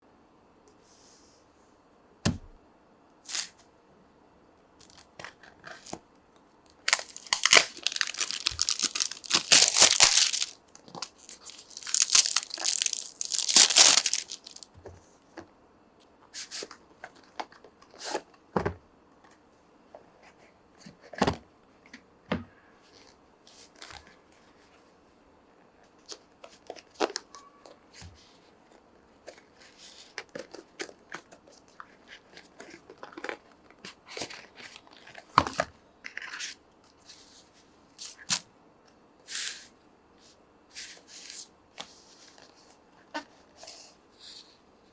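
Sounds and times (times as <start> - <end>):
packaging tearing: 3.3 - 3.5, 4.8 - 5.0, 6.7 - 14.6.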